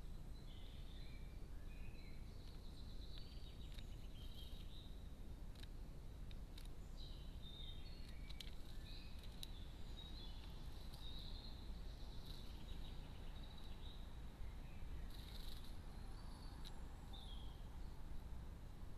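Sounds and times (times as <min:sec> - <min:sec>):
small birds chirping: 0:00.0 - 0:18.9
sharp clicks: 0:08.0 - 0:09.6.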